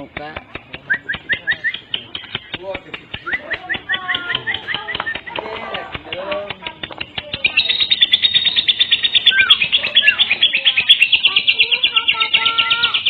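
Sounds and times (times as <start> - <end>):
lovebird chattering trill: 0.0 - 13.0
sliding whistle notes: 7.6 - 12.4.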